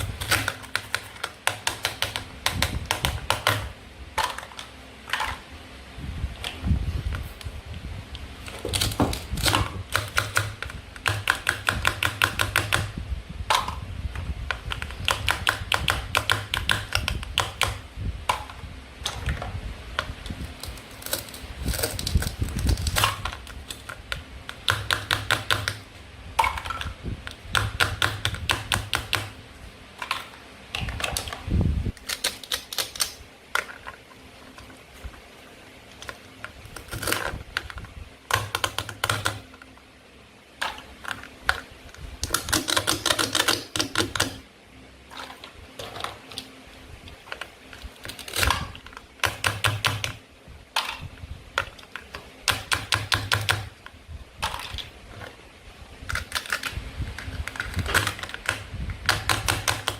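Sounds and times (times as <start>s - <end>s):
toy food clicking and tapping: 0.0s - 5.2s, 8.7s - 12.9s, 14.5s - 18.6s, 20.0s - 25.8s, 26.4s - 29.3s, 32.0s - 33.2s, 36.8s - 39.6s, 42.2s - 44.4s, 48.4s - 50.2s, 51.6s - 53.7s, 56.1s - 59.9s.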